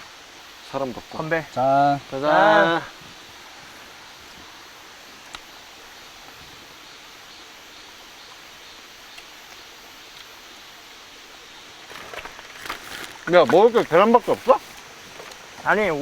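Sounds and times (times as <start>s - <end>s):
outdoor ambient hiss: 0.0s - 16.0s
faint click: 5.2s - 5.5s.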